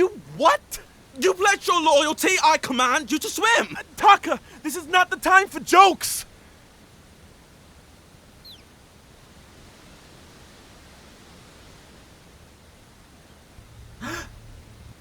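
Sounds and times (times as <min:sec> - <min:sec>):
rushing water: 0:00.0 - 0:08.3
low rumble: 0:13.6 - 0:15.0.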